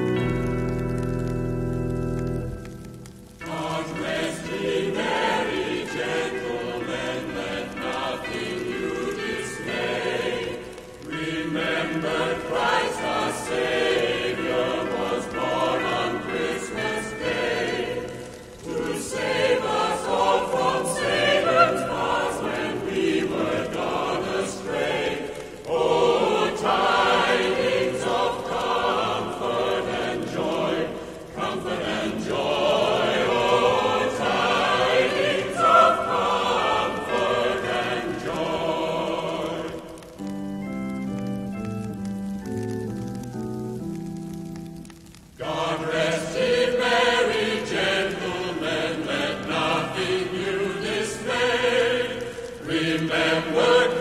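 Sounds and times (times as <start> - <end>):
choir singing a carol: 3.4 - 41.6, 44.2 - 54.0.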